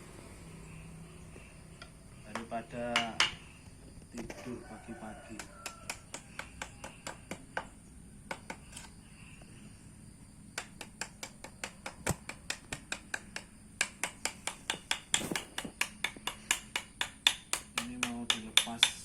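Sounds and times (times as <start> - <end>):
sharp taps on hard surface: 10.6 - 19.0.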